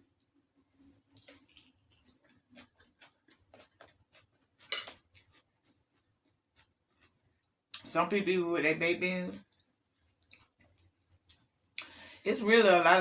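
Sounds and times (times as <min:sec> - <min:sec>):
wet chewing sounds: 0:00.6 - 0:07.9, 0:09.3 - 0:12.0.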